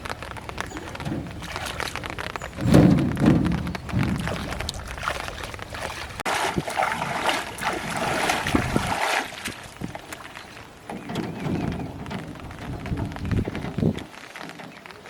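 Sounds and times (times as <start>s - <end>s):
low rumble: 0.0s - 6.2s
rain: 0.0s - 6.3s, 7.4s - 15.0s
water splashing around boat: 0.0s - 15.0s.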